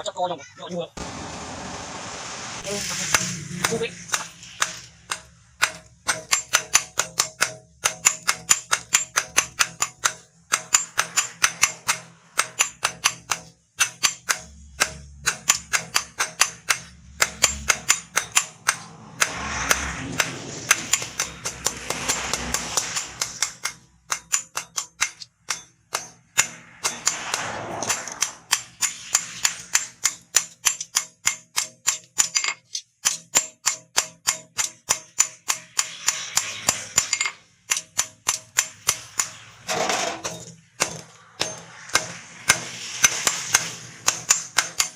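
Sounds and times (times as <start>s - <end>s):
rushing noise: 1.0s - 5.7s, 17.1s - 24.2s, 26.2s - 30.4s, 39.2s - 44.9s
hammer striking steel on anvil: 3.0s - 44.9s.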